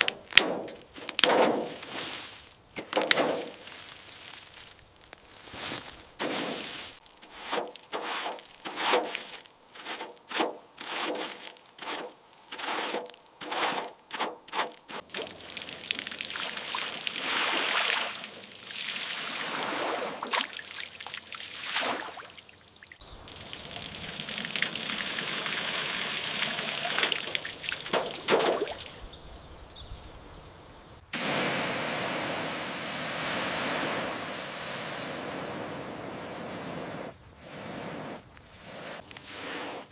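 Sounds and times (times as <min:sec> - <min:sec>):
scraping strokes: 0:00.5 - 0:15.3, 0:25.5 - 0:29.1, 0:37.5 - 0:39.9
running water: 0:09.8 - 0:35.7.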